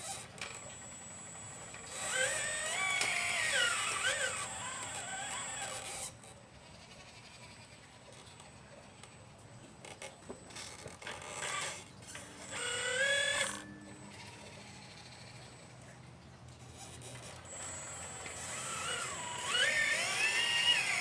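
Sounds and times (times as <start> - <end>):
small electric motors whining: 0.0 - 9.2, 9.8 - 21.0.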